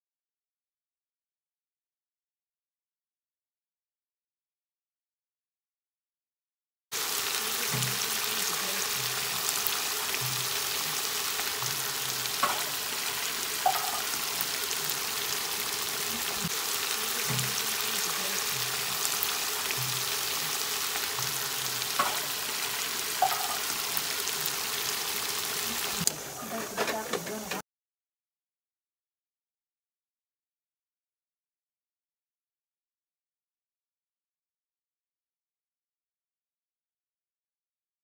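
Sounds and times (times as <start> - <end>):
meat sizzling in a frying pan: 7.0 - 26.6.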